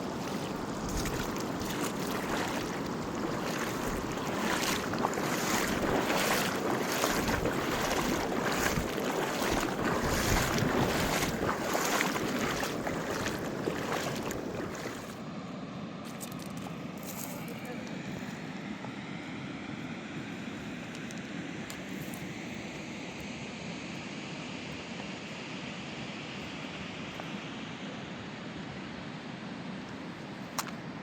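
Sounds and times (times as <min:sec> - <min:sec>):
mountain river rushing: 0:00.0 - 0:15.2.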